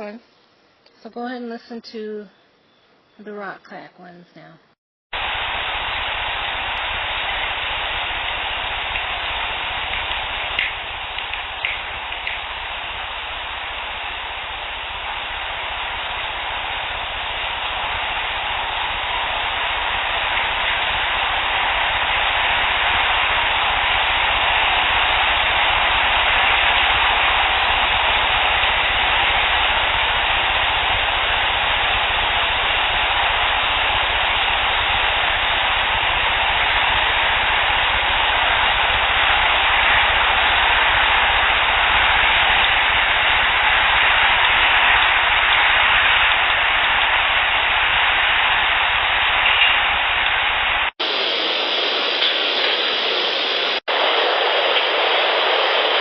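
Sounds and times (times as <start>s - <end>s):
steady outdoor hiss: 0.0s - 56.0s.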